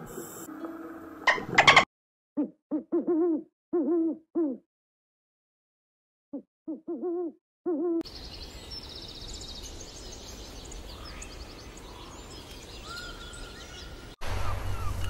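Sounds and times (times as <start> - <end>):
owl hooting: 2.4 - 4.6, 6.7 - 8.0
small birds chirping and trilling: 8.1 - 15.0.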